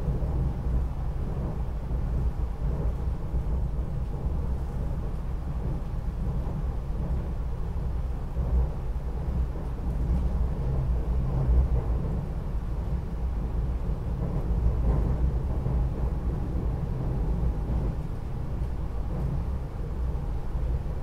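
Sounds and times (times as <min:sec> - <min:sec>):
train low rumble: 0:00.0 - 0:21.0.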